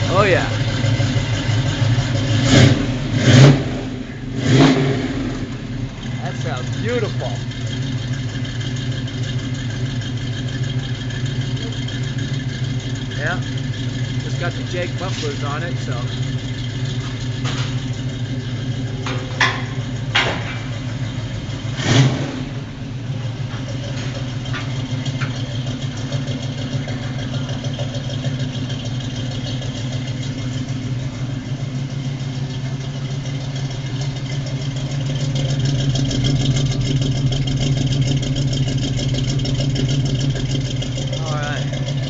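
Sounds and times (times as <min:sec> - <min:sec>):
car engine idling: 0:00.0 - 0:42.0
sharp knocks: 0:19.0 - 0:20.8.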